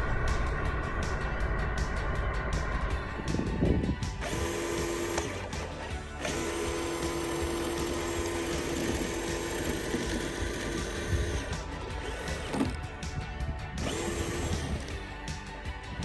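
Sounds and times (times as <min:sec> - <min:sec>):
low rumble: 0:00.0 - 0:06.6
small electric motor whining: 0:03.4 - 0:13.1, 0:13.8 - 0:15.1.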